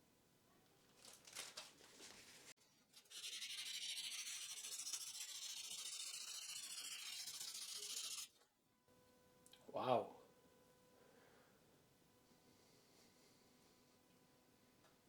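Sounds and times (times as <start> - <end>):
metal rubbing on abrasive paper: 2.9 - 8.3.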